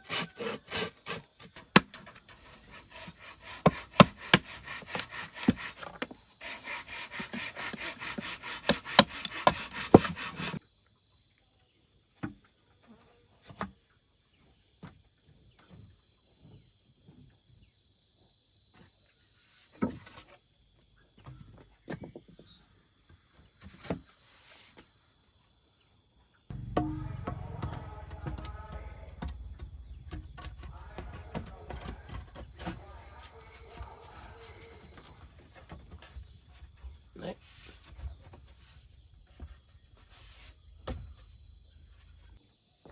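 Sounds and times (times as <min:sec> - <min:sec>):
hand saw cutting wood: 0:00.0 - 0:10.6
insects buzzing: 0:00.0 - 0:10.6, 0:26.5 - 0:42.7.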